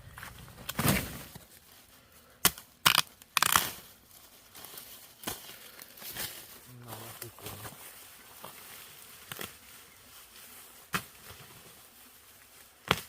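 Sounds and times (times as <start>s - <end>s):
sharp rustling and tearing: 2.8s - 13.0s.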